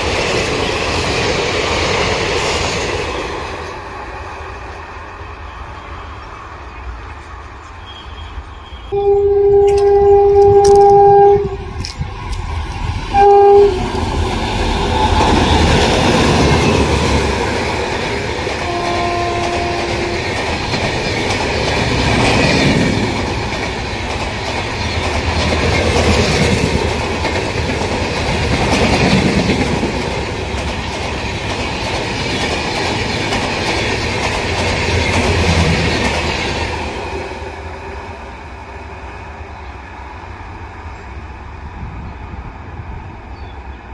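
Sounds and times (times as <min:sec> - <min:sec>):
train wheels rumbling and clacking: 0:00.0 - 0:09.0, 0:09.6 - 0:43.4
train horn blast: 0:07.9 - 0:11.8, 0:13.1 - 0:14.0, 0:18.6 - 0:20.4.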